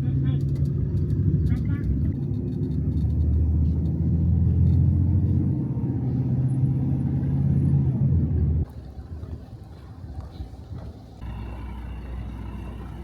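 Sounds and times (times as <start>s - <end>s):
large engine running: 8.2s - 13.0s.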